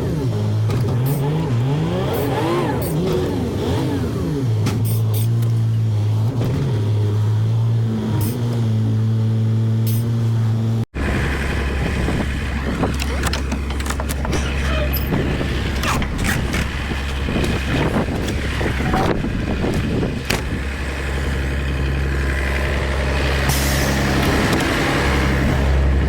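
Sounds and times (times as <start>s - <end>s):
vehicle engine running: 0.0s - 26.0s
clicks and rattles: 12.2s - 21.3s.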